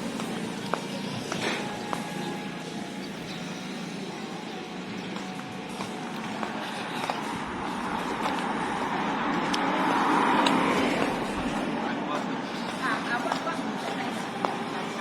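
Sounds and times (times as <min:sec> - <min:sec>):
motor vehicle passing by: 0:06.8 - 0:13.1.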